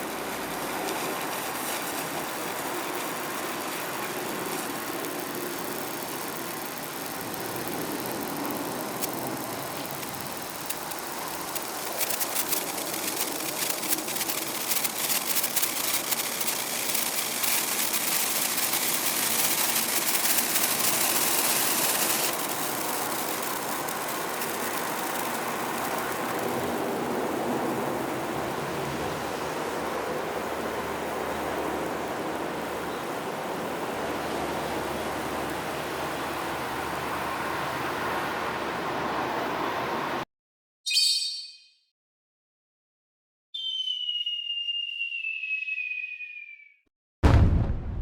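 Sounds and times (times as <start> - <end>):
sparkler crackling: 0.0 - 28.6
steady background hiss: 0.0 - 40.2.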